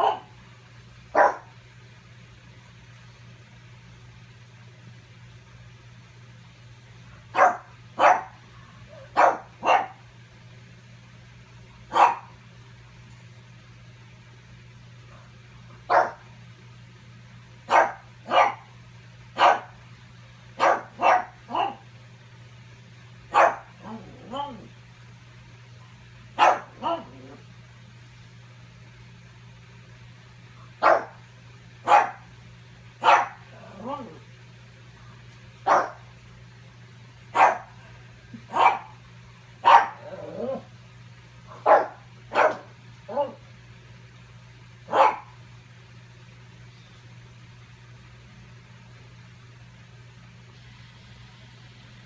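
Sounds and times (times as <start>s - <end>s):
dog barking: 0.0s - 0.4s, 1.1s - 1.5s, 7.3s - 8.4s, 9.0s - 10.0s, 11.9s - 12.3s, 15.9s - 16.2s, 17.7s - 18.7s, 19.4s - 19.8s, 20.6s - 21.8s, 23.3s - 24.6s, 26.4s - 27.3s, 30.8s - 31.2s, 31.9s - 32.3s, 33.0s - 34.1s, 35.7s - 36.0s, 37.3s - 37.8s, 38.5s - 38.9s, 39.6s - 40.3s, 41.5s - 43.4s, 44.9s - 45.4s.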